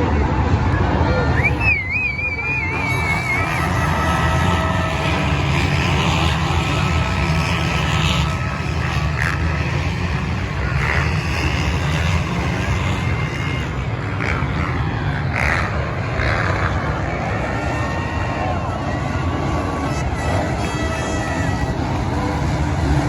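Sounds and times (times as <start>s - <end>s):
golf cart motor and tyres rumbling: 0.0s - 23.0s.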